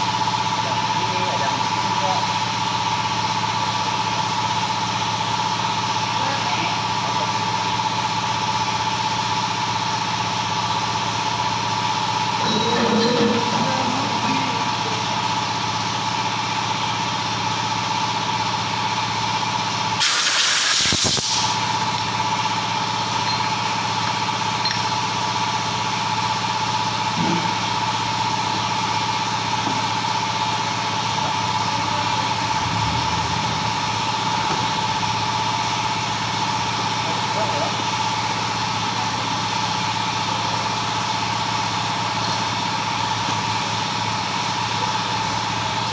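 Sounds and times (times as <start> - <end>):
machine drone: 11.2 - 17.1, 31.8 - 35.5
loud hiss of escaping air: 20.0 - 21.6.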